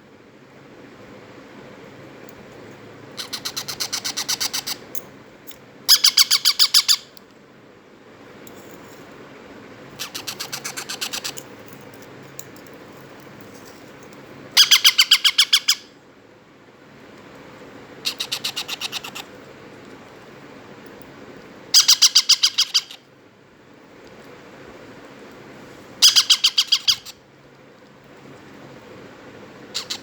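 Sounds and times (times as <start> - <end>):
parrot chicks chattering: 3.2 - 4.9, 5.9 - 7.1, 10.0 - 11.5, 14.6 - 15.9, 18.0 - 19.3, 21.8 - 23.0, 26.0 - 27.2, 29.7 - 30.0.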